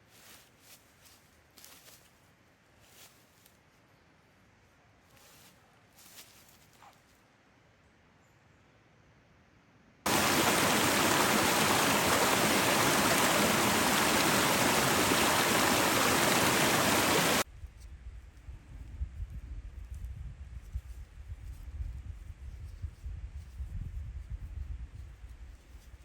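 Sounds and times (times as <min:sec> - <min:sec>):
waterfall rushing: 0:10.1 - 0:17.4.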